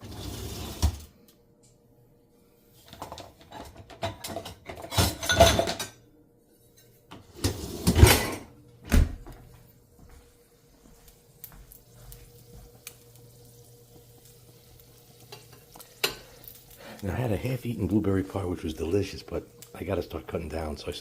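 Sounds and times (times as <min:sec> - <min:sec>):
drawers and cupboards opening and shutting: 0:00.0 - 0:01.1, 0:02.9 - 0:05.8, 0:07.1 - 0:09.3.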